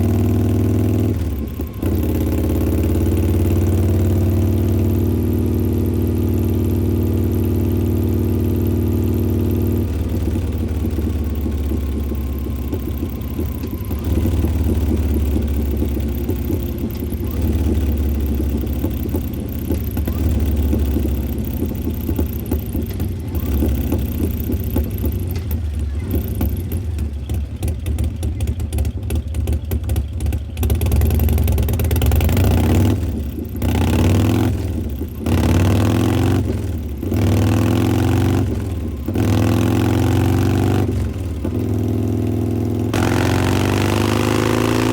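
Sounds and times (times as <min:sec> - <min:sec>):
throttle blips: 0:00.0 - 0:05.5, 0:08.9 - 0:26.8
motorcycle engine idling: 0:00.0 - 0:44.9.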